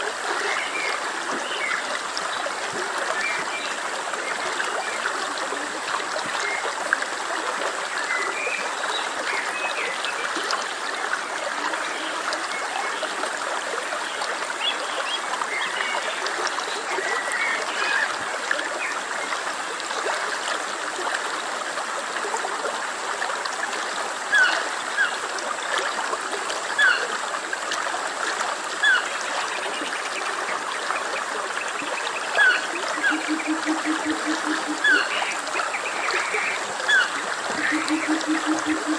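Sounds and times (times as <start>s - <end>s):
stream flowing over stones: 0.0s - 38.9s.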